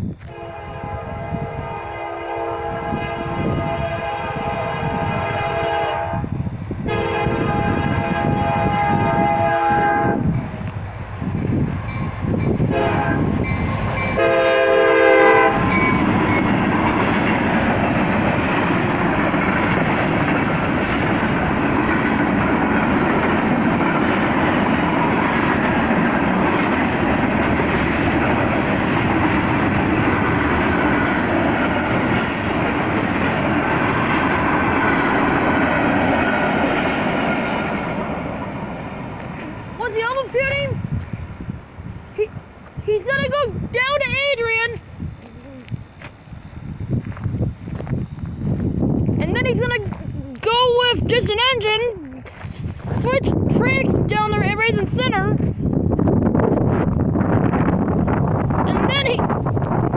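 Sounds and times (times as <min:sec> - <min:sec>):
train rumbling and rattling: 0:00.0 - 0:59.9
freight train horn blast: 0:00.2 - 0:10.4, 0:12.4 - 0:17.1.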